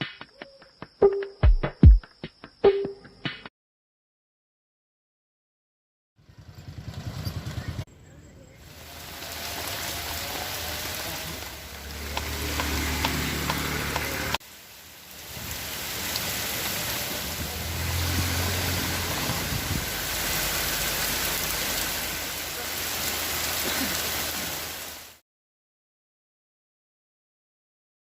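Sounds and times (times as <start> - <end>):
steady rain: 8.5 - 25.2
rain drop clicks: 9.0 - 18.4.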